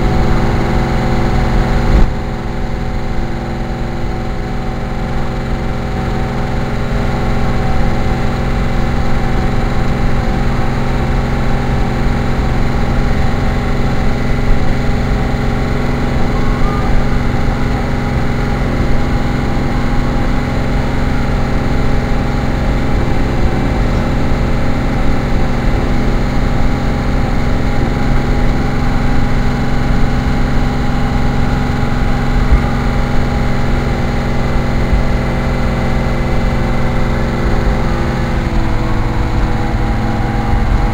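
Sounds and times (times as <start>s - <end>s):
car engine drone: 0.0s - 40.9s
road and wind noise: 0.0s - 40.9s.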